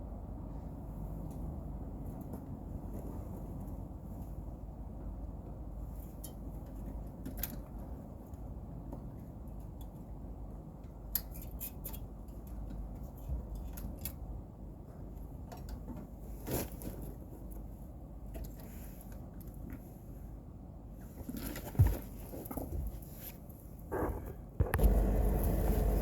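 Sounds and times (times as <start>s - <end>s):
low steady rumble: 0.0s - 11.1s, 22.8s - 26.0s.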